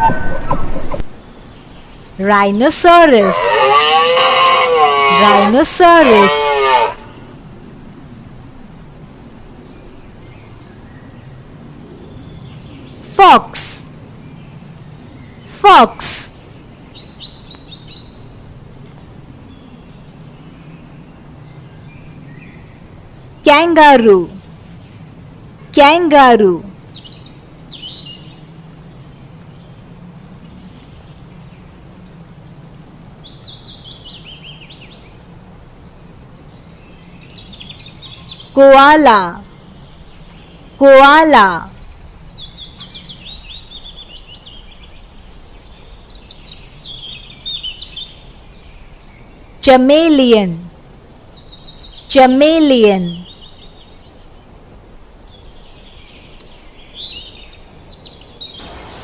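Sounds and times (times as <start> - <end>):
steady background hiss: 0.0 - 3.6, 4.7 - 59.0
low background noise: 0.0 - 59.0
small birds chirping: 55.2 - 59.0.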